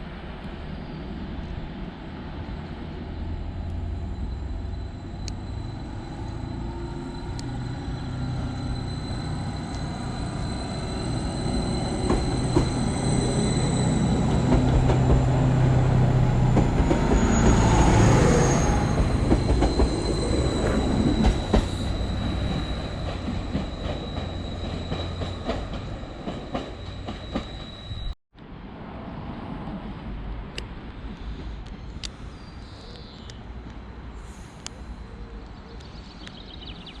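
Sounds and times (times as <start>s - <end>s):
train wheels squealing: 3.0s - 28.2s.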